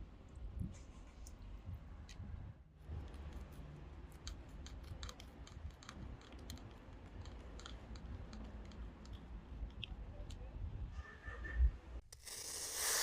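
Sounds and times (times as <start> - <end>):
small sharp clicks and snips: 3.1 - 10.4.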